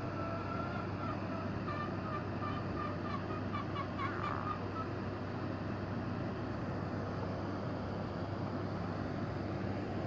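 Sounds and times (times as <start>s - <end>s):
bird calling: 0.0s - 5.0s
steady low hum: 0.0s - 10.0s.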